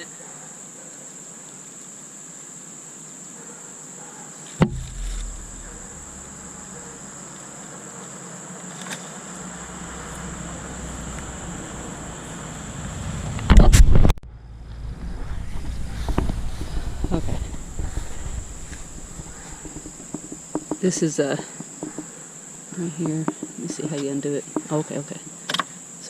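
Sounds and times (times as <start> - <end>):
insects trilling: 0.0 - 13.4, 15.3 - 26.0
sharp knock: 4.6 - 7.0, 15.6 - 20.9
handling noise rumble: 4.6 - 7.6, 9.3 - 22.2.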